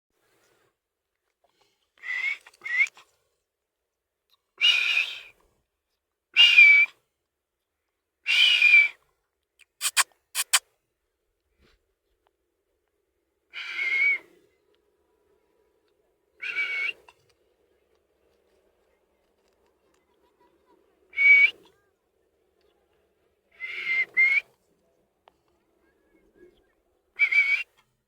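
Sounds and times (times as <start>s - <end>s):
parrot whistled calls: 9.8s - 10.6s
sharp clicks: 9.8s - 10.6s.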